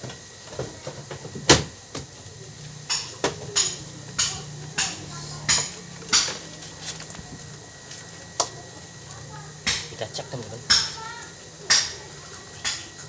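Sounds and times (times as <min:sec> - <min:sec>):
sharp metallic knocks: 0:02.9 - 0:06.4, 0:10.7 - 0:11.0, 0:11.7 - 0:12.0.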